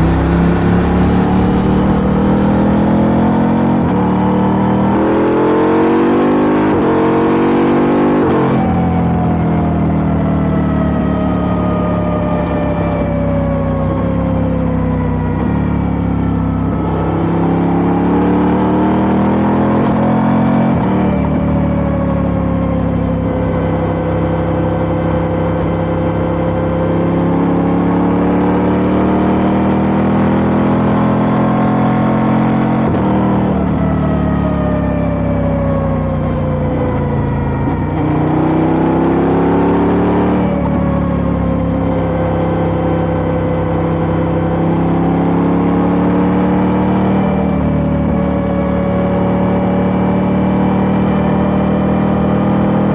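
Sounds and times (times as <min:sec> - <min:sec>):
motorcycle engine revving: 0:00.0 - 0:21.9, 0:22.6 - 0:52.9.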